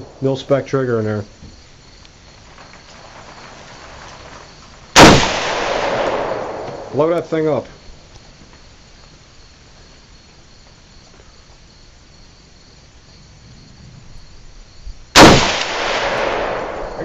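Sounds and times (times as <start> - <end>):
crickets chirping: 0.0 - 17.0
rifle shot echoing: 5.0 - 7.2, 15.2 - 17.0.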